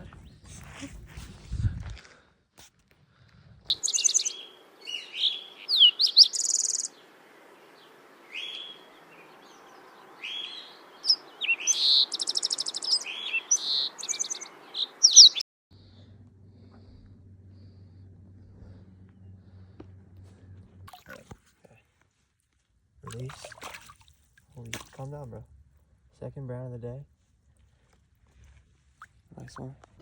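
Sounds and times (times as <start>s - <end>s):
songbirds singing: 3.7s - 15.4s
faint low hum: 15.7s - 30.0s.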